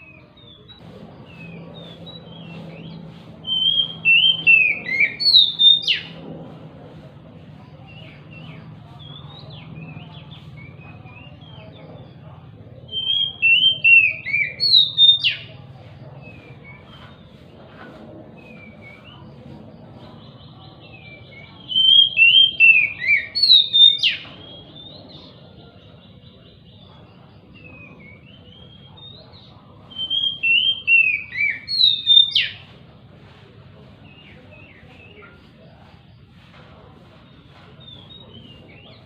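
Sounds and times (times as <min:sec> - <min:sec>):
soft bird chirps: 0:00.0 - 0:06.2, 0:34.0 - 0:39.0
songbird singing phrases: 0:00.0 - 0:06.3, 0:07.5 - 0:17.6, 0:18.2 - 0:33.1, 0:33.7 - 0:39.0.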